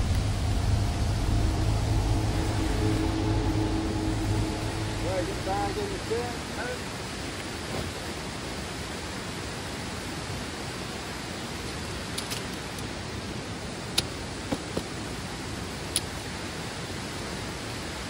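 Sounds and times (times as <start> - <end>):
steady rushing noise: 0.0 - 8.8.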